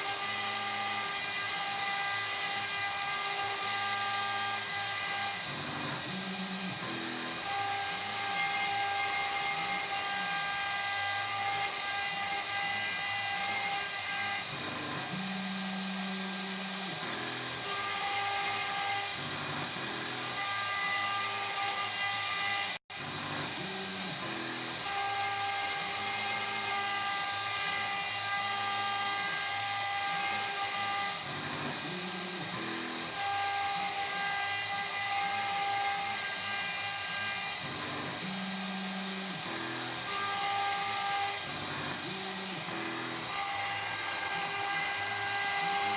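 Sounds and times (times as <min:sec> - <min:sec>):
router spindle whining: 0:00.0 - 0:45.9.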